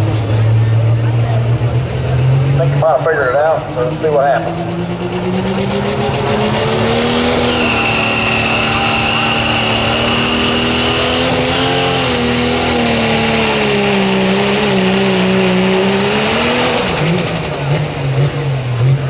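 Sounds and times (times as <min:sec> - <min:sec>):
diesel truck engine under load: 0:00.0 - 0:19.0
high turbo whistle: 0:05.8 - 0:14.8
whistle climbing in pitch: 0:06.2 - 0:13.9.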